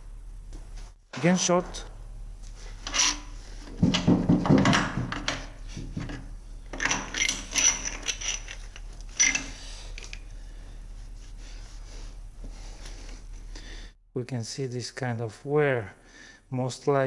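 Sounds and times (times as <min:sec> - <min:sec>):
metal engine parts clinking: 0:02.8 - 0:03.3, 0:06.7 - 0:09.6.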